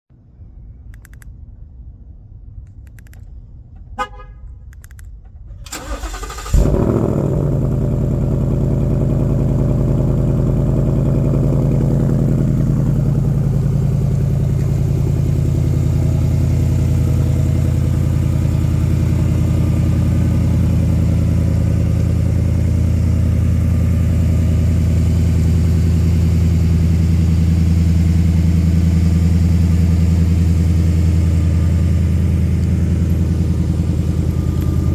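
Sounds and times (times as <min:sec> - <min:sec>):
car engine starting and idling: 0:04.6 - 0:34.9.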